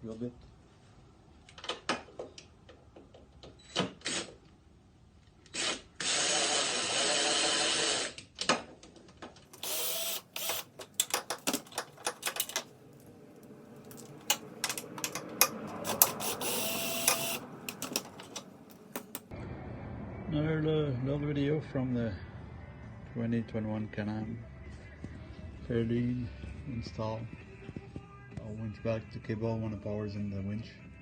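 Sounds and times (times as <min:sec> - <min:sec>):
cordless drill running: 0:09.6 - 0:12.4, 0:13.9 - 0:19.2
tools and hardware rattling: 0:09.6 - 0:19.3.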